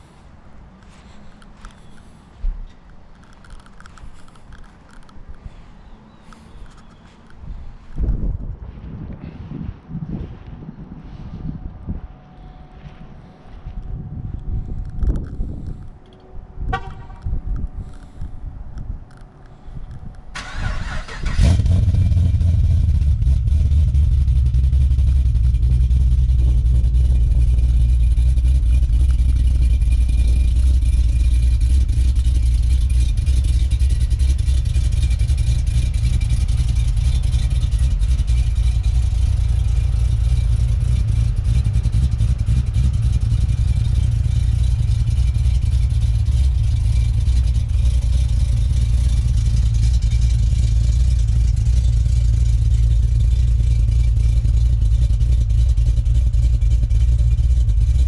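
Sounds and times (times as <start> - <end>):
car engine idling loudly: 21.4 - 58.0.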